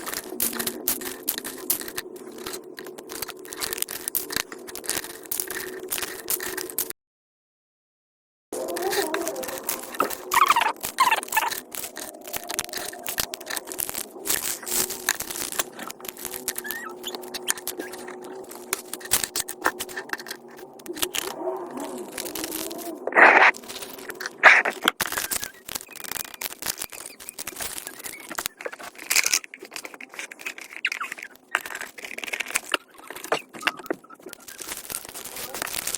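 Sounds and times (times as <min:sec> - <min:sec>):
packaging rustling and crinkling: 0:00.0 - 0:06.9, 0:08.6 - 0:35.9
small clicks and taps: 0:08.6 - 0:21.4.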